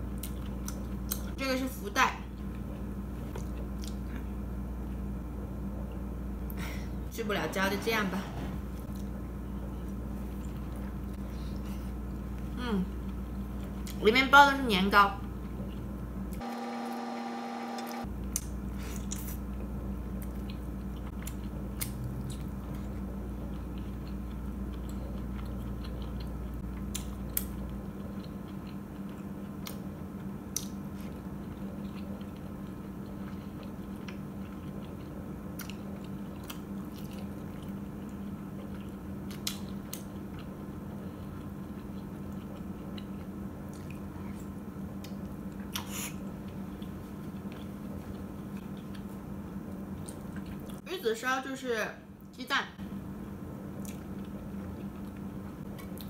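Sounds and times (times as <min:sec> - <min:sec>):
person chewing wet food: 0:00.0 - 0:01.4, 0:02.4 - 0:05.0, 0:18.2 - 0:50.8, 0:53.7 - 0:56.0
steady low hum: 0:00.0 - 0:56.0.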